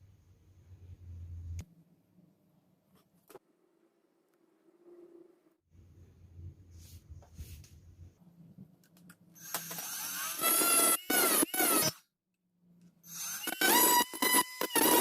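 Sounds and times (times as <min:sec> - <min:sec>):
cordless drill motor whining: 0:09.4 - 0:12.0, 0:13.0 - 0:15.0.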